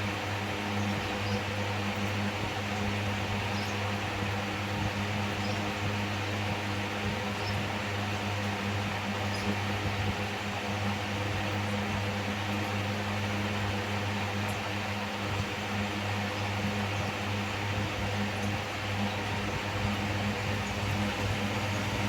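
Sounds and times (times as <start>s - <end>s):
electric fan motor humming: 17.1s - 22.0s.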